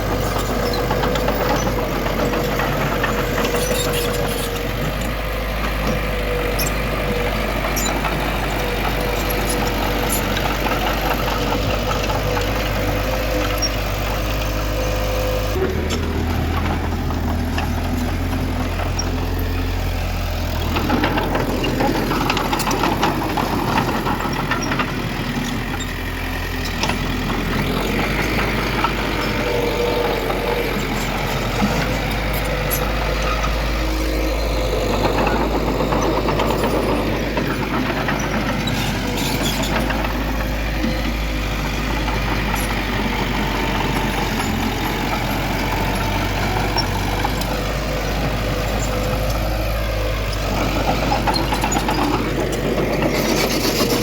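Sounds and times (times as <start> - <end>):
earthmoving machinery engine hum: 0.0 - 54.0
machine clanks and rattles: 0.0 - 54.0.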